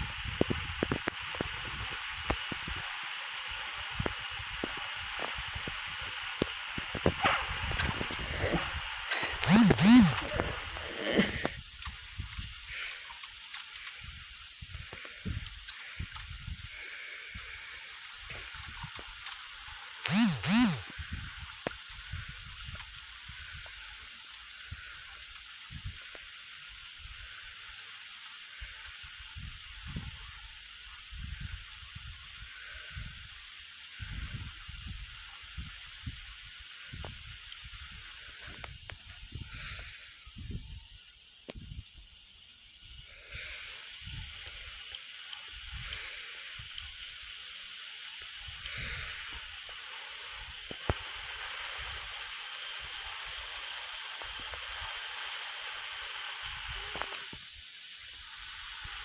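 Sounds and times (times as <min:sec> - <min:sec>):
rushing hiss of cockpit airflow: 0:24.5 - 0:41.0, 0:41.6 - 0:59.0.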